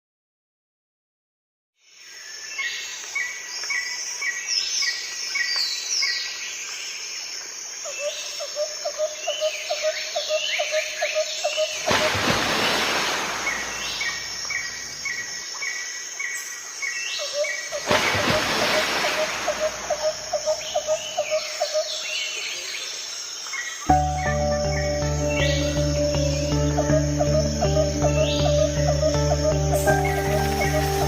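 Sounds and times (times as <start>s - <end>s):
small birds chirping: 9.2s - 31.0s.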